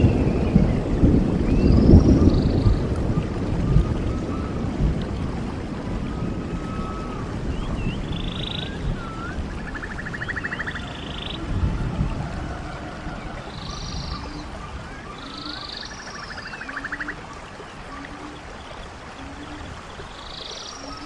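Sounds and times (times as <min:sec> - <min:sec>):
birds chirping: 0:00.0 - 0:21.0
stream water rushing: 0:00.0 - 0:21.0
bird pulsed trill: 0:06.6 - 0:11.5, 0:13.5 - 0:17.2, 0:19.2 - 0:21.0.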